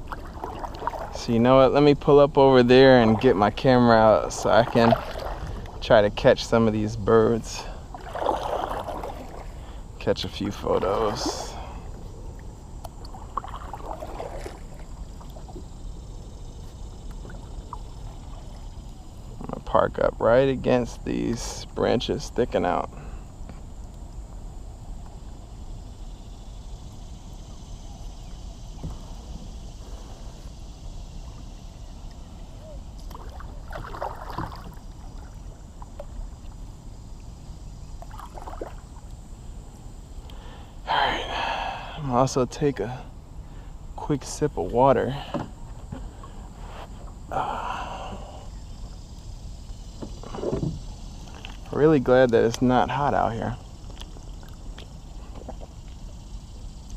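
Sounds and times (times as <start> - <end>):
paddle splashing water: 0.0 - 19.4, 31.2 - 39.5, 45.2 - 51.8, 53.5 - 56.9
low wind rumble: 0.0 - 56.9.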